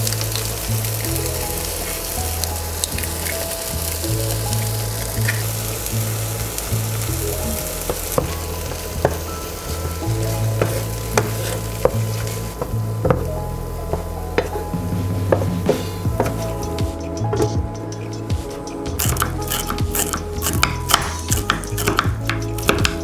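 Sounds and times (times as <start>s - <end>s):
background music: 0.0s - 23.0s
eggs and vegetables sizzling in pan: 0.0s - 23.0s
wooden spatula scraping pan: 7.9s - 13.2s, 15.3s - 22.0s.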